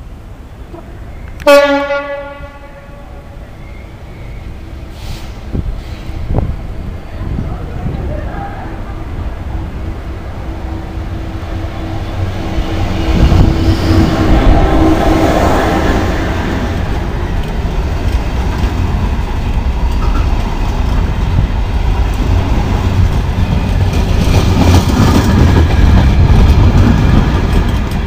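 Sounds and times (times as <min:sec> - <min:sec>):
freight train wheels rumbling: 0:00.0 - 0:28.0.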